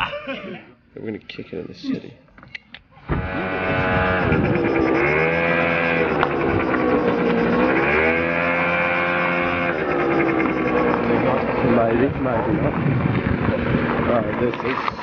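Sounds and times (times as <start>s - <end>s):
motor scooter engine running: 3.2s - 15.0s.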